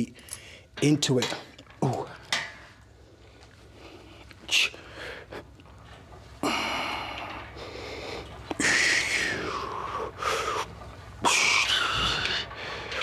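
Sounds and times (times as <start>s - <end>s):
man breathing hard: 6.4s - 10.7s.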